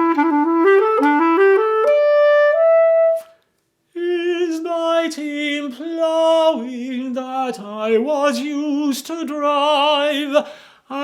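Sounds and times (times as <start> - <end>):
man singing unaccompanied: 3.9 - 11.0.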